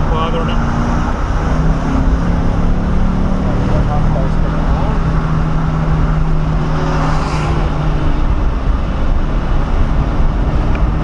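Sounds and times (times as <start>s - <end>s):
car engine running: 0.0s - 11.0s
road rumble: 0.0s - 11.0s.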